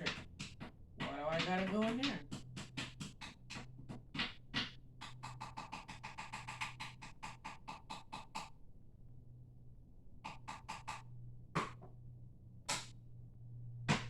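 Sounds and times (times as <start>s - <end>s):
steady low hum: 0.0s - 7.0s, 8.5s - 14.0s
rapid even clicking: 0.0s - 8.5s.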